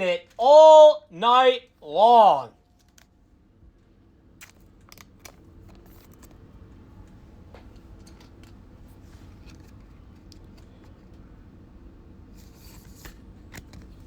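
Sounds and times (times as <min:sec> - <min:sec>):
trading cards and packaging handled: 0:04.4 - 0:06.4.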